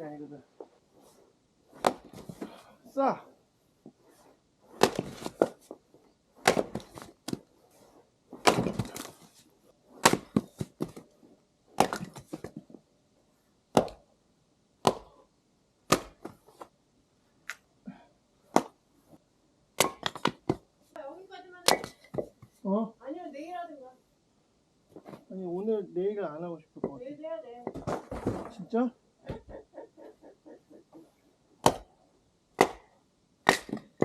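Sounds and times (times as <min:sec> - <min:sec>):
axe splitting firewood: 0:01.8 - 0:02.6, 0:04.8 - 0:05.6, 0:06.4 - 0:07.4, 0:08.4 - 0:09.2, 0:10.0 - 0:11.0, 0:11.8 - 0:12.4, 0:19.8 - 0:20.6, 0:31.6 - 0:31.9, 0:32.6 - 0:34.0
split wood pieces falling: 0:08.4 - 0:09.2.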